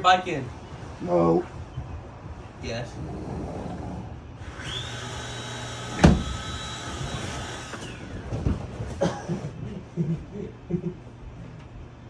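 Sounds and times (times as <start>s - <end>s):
small electric motor whining: 4.4s - 8.1s
sharp thump: 6.0s - 6.4s.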